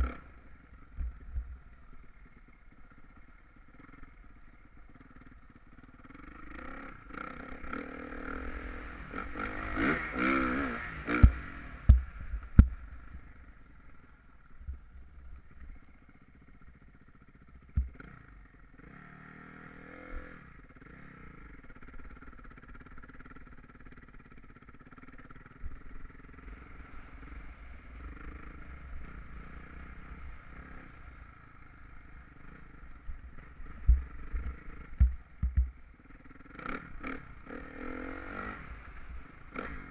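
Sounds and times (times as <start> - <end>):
motocross bike engine revving: 0.0 - 0.5, 5.0 - 12.6, 17.6 - 39.9
sharp low thumps: 17.7 - 18.0, 33.8 - 35.8.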